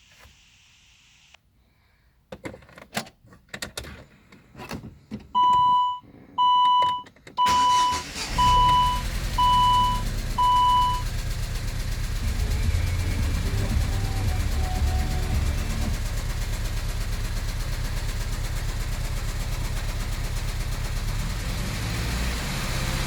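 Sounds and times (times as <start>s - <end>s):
car warning chime beeping: 5.4s - 11.1s, 12.3s - 16.1s
car engine starting and running: 5.4s - 23.0s.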